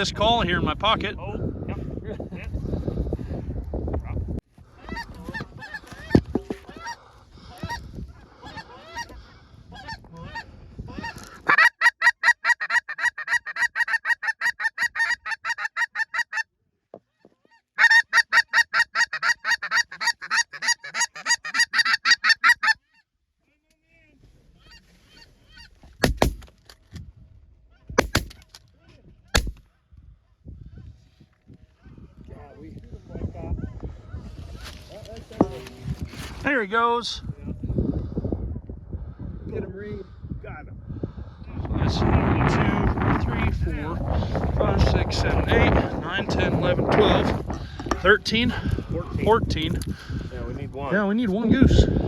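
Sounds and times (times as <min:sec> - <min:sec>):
geese honking: 0:04.8 - 0:16.4, 0:17.8 - 0:22.8
sharp bangs: 0:26.0 - 0:26.5, 0:28.0 - 0:28.4, 0:29.4 - 0:29.6.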